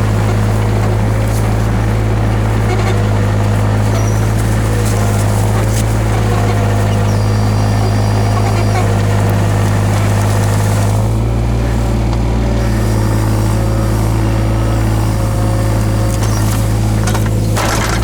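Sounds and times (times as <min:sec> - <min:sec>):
diesel engine running: 0:00.0 - 0:18.0
short clatter: 0:15.8 - 0:18.0.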